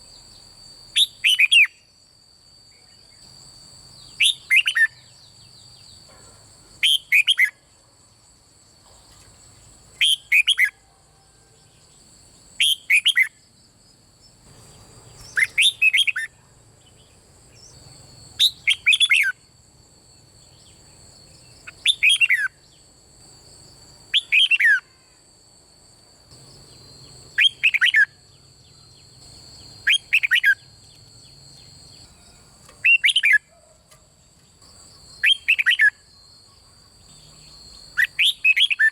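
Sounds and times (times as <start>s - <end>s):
steady high-pitched whine: 0.0s - 38.9s
bird singing whistled phrases: 1.0s - 1.9s, 4.1s - 5.1s, 6.8s - 7.6s, 10.0s - 10.8s, 12.6s - 13.4s, 15.2s - 16.4s, 18.4s - 19.4s, 21.6s - 22.6s, 24.1s - 24.9s, 27.4s - 28.2s, 29.8s - 31.4s, 32.8s - 33.5s, 35.2s - 36.1s, 37.9s - 38.9s.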